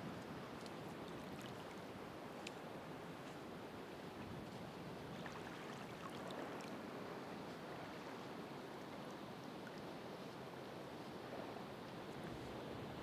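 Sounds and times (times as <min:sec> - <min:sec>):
faint small crackles: 0:00.2 - 0:02.6.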